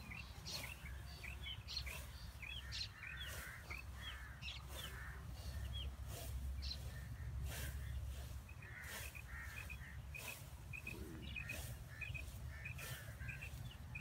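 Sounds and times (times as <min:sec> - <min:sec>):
rustling hiss: 0:00.0 - 0:14.0
steady low rumble: 0:00.0 - 0:14.0
small bird chirping: 0:07.5 - 0:14.0.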